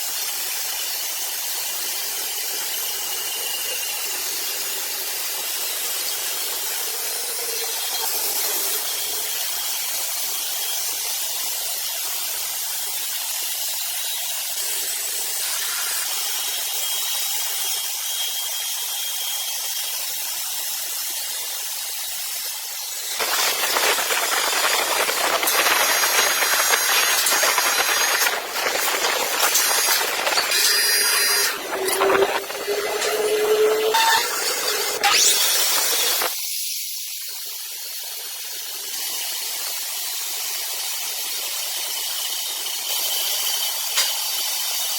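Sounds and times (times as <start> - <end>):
sawmill saw running: 0.0 - 36.4
saw blade cutting log: 14.6 - 17.6, 22.8 - 36.3.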